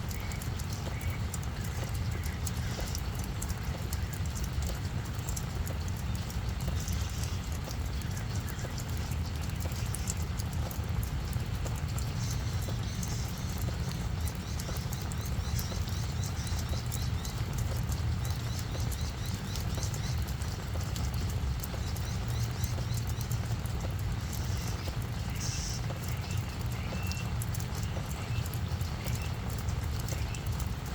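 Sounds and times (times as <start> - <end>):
raindrops tapping: 0.0 - 30.9.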